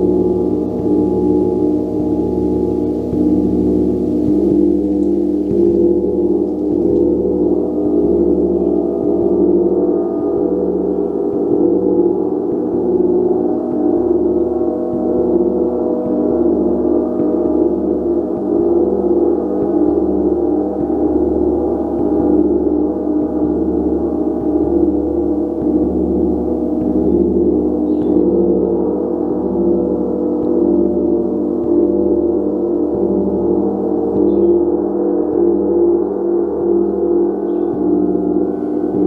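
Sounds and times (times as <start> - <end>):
gong ringing: 0.0 - 8.9.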